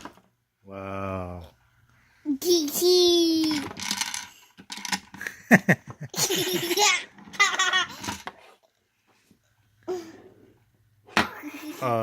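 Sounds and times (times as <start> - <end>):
young child laughing: 5.5 - 8.0.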